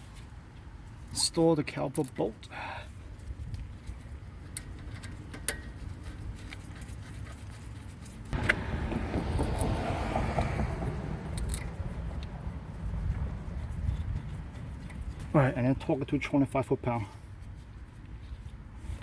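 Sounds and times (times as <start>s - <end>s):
rattling and scraping: 4.6s - 15.4s
metal tool clicks: 11.3s - 12.3s.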